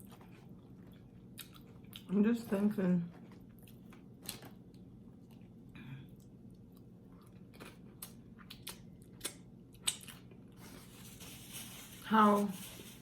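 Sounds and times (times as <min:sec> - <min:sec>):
person chewing food: 0:00.0 - 0:02.1, 0:03.1 - 0:10.7.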